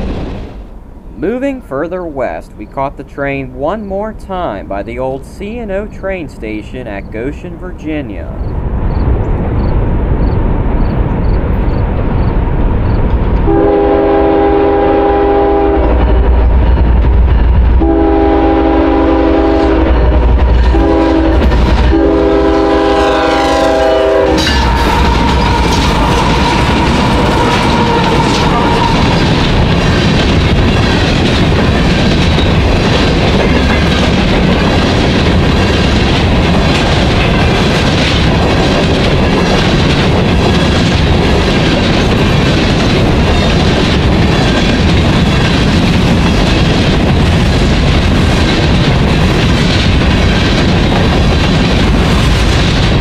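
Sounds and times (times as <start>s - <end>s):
diesel locomotives rumbling: 0.0s - 53.0s
locomotive horn blasts: 13.5s - 16.0s, 17.8s - 29.1s
freight cars rolling past: 24.3s - 53.0s.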